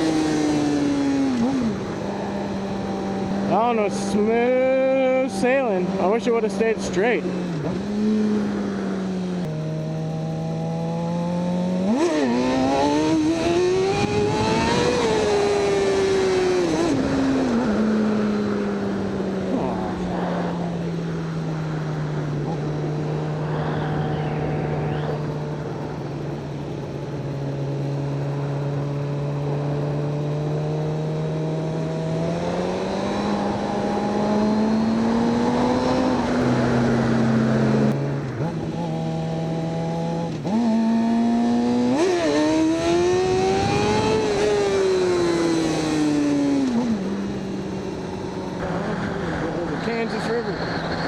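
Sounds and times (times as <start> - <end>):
motorcycle engine revving: 0.0 - 51.0
wind noise on microphone: 12.6 - 17.8, 42.0 - 45.7.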